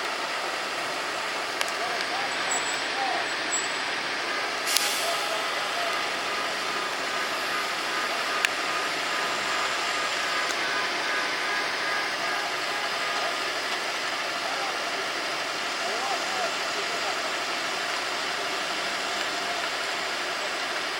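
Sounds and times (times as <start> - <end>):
street traffic: 0.0 - 20.9
short hiss: 4.6 - 6.7.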